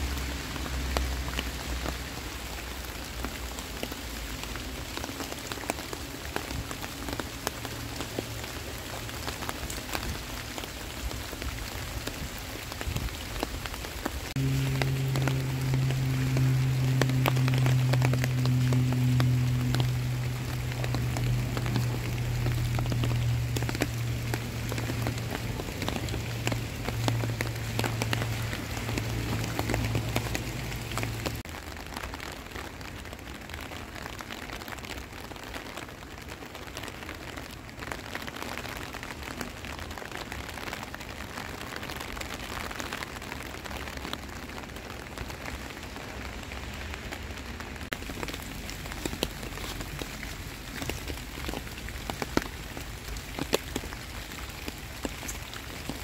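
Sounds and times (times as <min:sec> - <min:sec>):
heavy rain on pavement and leaves: 0:00.0 - 0:56.0
low steady hum: 0:14.4 - 0:31.4.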